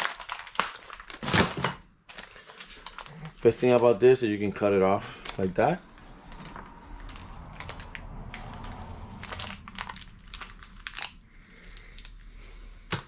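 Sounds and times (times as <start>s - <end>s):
gasket material crinkling: 0.0s - 3.6s, 6.3s - 13.0s.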